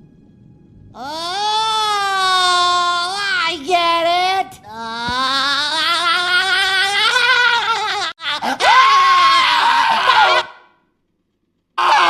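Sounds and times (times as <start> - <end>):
long high cartoon scream: 1.0 - 3.4, 5.0 - 10.7, 11.8 - 12.0
cartoon hysterical laughter: 6.4 - 10.5.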